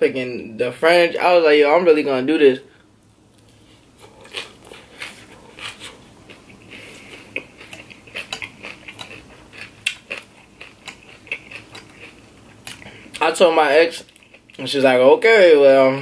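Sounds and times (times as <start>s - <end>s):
crunchy chewing of salad: 3.3s - 13.3s, 13.9s - 14.7s.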